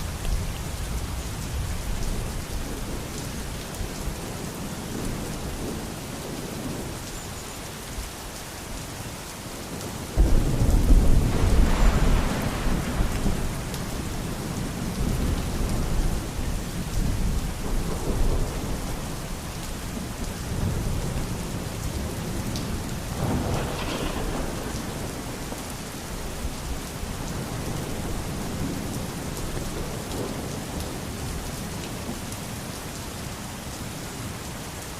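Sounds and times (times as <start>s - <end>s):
steady rain: 0.0s - 34.9s
thunder rumbling: 9.7s - 31.0s.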